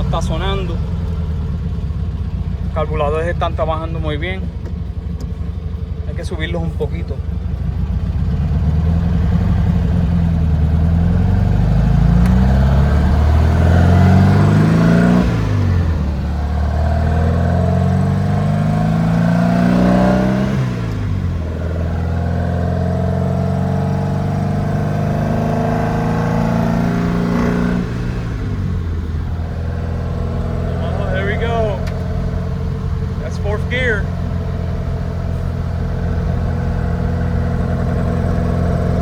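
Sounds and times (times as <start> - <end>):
car engine accelerating through gears: 8.0 - 39.0.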